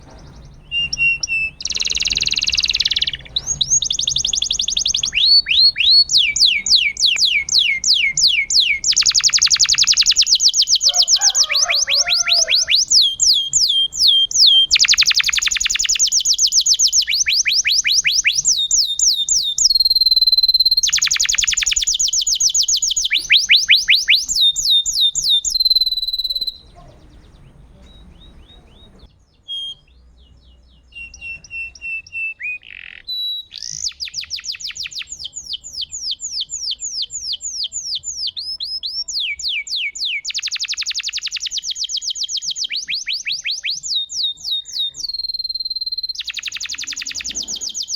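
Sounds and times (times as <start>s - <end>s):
canary singing trills: 0.0s - 47.9s
faint bird chirps: 0.0s - 47.9s.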